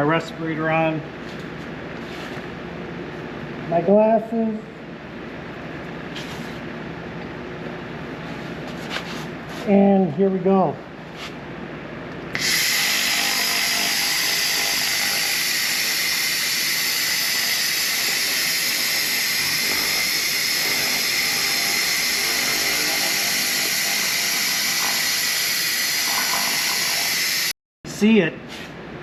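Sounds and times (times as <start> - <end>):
laser cleaner hissing: 12.4 - 27.5.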